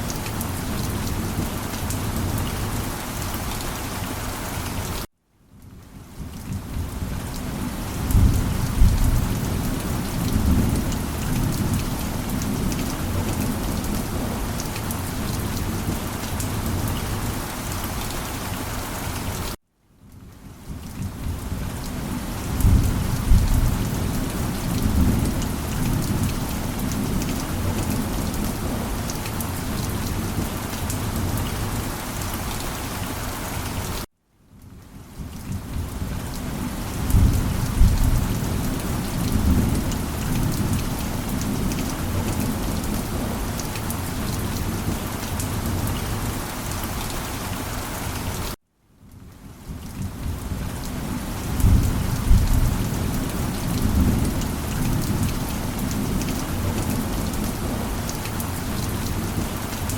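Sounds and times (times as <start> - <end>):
steady rain: 0.0 - 59.9
rolling thunder: 22.5 - 28.8, 37.0 - 43.4, 51.5 - 57.8.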